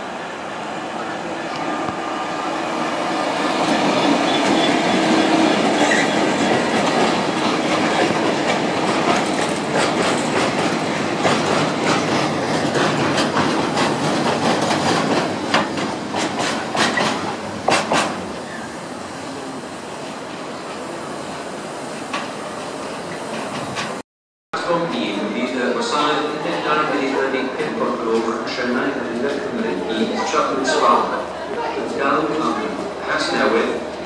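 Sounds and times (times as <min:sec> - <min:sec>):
diesel locomotive passing: 0:00.0 - 0:24.0.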